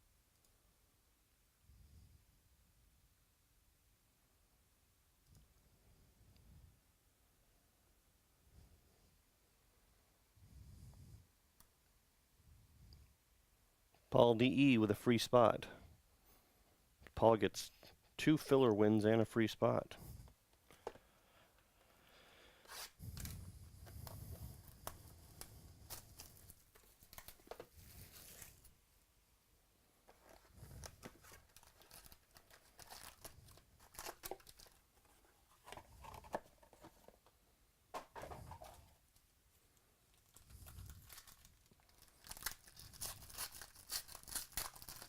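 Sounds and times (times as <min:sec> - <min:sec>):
card pack wrappers tearing: 0:24.7 - 0:28.7, 0:30.2 - 0:34.8, 0:40.3 - 0:45.0.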